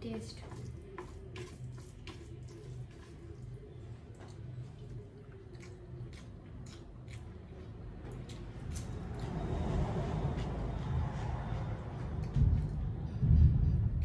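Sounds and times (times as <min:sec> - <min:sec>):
steady low hum: 0:00.0 - 0:14.0
fingers mixing rice on plate: 0:00.4 - 0:03.6
person chewing: 0:00.6 - 0:09.4.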